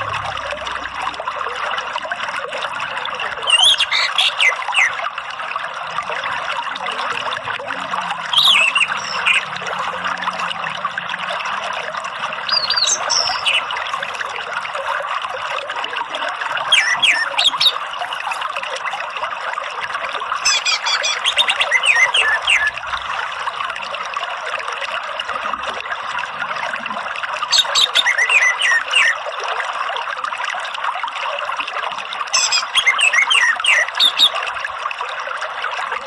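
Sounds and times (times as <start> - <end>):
trickling water: 0.0 - 36.0
thrush whistled calls: 3.4 - 5.0, 8.3 - 10.5, 12.5 - 15.0, 16.7 - 18.6, 20.4 - 22.8, 27.5 - 29.2, 32.3 - 34.5.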